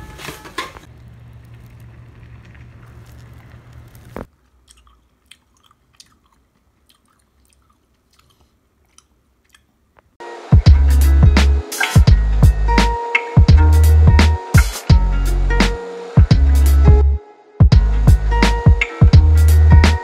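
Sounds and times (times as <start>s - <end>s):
chewy candy being chewed: 0.9s - 10.2s
loud music: 10.2s - 20.0s.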